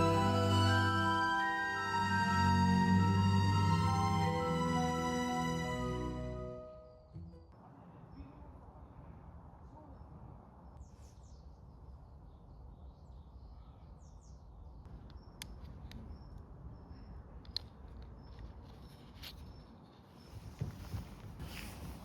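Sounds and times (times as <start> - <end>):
faint birds chirping: 6.8 - 20.9.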